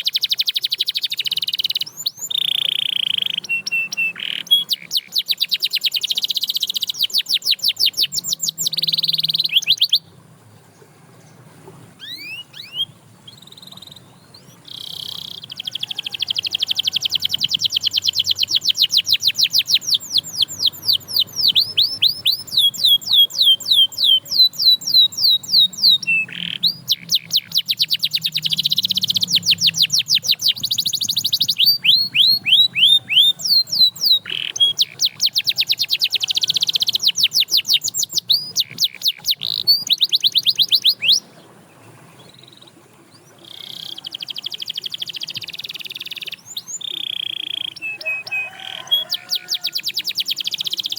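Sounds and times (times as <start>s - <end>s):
canary singing trills: 0.0s - 10.2s, 12.0s - 41.4s, 42.2s - 50.9s.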